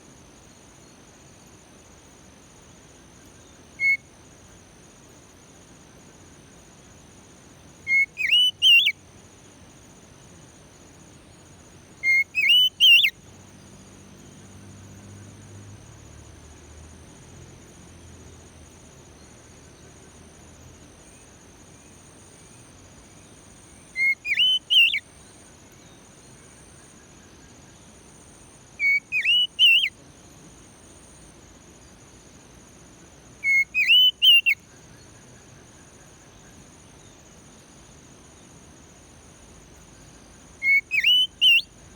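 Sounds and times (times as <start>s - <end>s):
crickets trilling: 0.0s - 41.9s
bird whistling short phrase: 7.9s - 8.9s, 12.0s - 13.1s, 24.0s - 25.0s, 28.8s - 29.9s, 33.4s - 34.6s, 40.6s - 41.6s.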